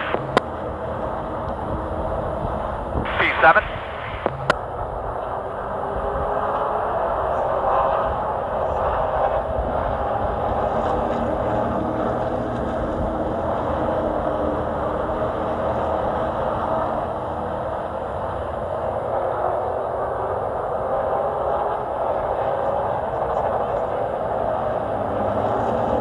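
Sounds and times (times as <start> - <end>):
race truck engine running hard: 0.0 - 26.0.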